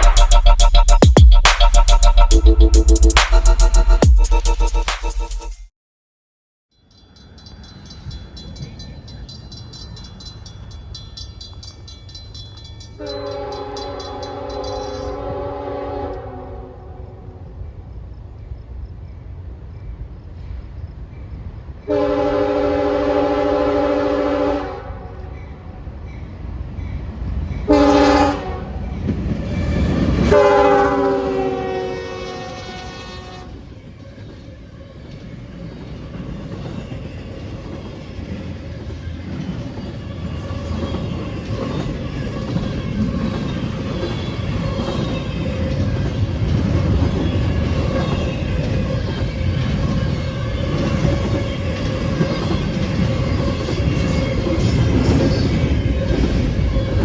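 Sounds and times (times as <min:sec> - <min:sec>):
crossing bell ringing: 0:06.7 - 0:15.3
train rumble: 0:07.2 - 0:57.0
locomotive horn blasts: 0:13.0 - 0:17.0, 0:21.9 - 0:25.1, 0:27.7 - 0:28.8, 0:30.3 - 0:33.6.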